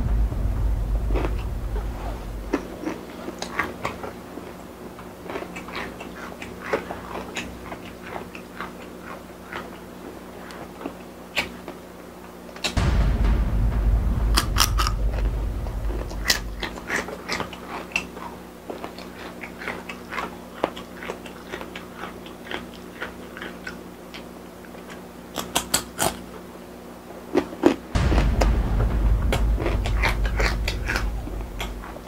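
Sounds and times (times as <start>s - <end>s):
low rumble: 0.0s - 3.2s, 12.8s - 17.2s, 28.0s - 32.0s.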